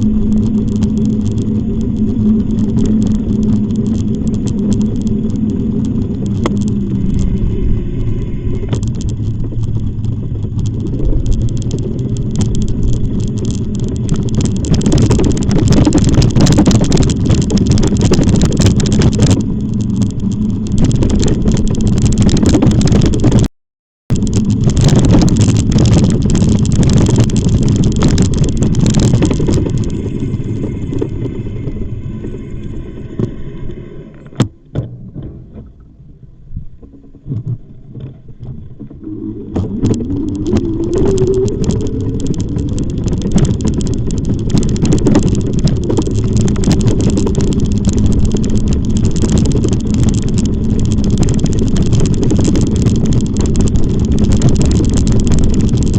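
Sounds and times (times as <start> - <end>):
low rising whine: 0.0 - 23.5, 24.1 - 55.9
wind buffeting microphone: 0.0 - 23.5, 24.1 - 55.9.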